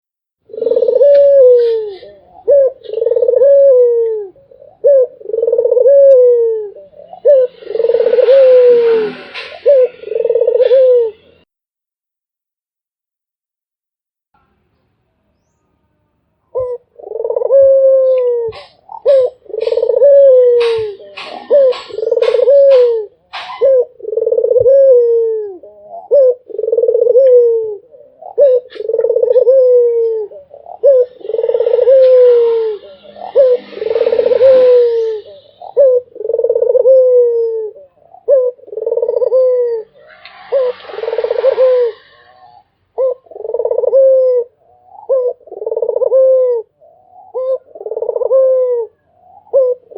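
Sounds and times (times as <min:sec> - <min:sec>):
dove cooing: 0:00.5 - 0:11.4, 0:16.5 - 0:49.9
rustling hiss: 0:07.2 - 0:11.1, 0:30.8 - 0:36.7, 0:38.7 - 0:42.7.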